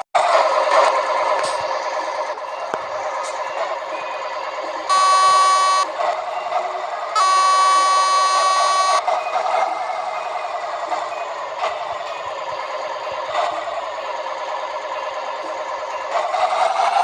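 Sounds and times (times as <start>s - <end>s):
truck running noise: 0.0s - 17.0s
long steady beeps: 4.9s - 5.9s, 7.2s - 9.0s.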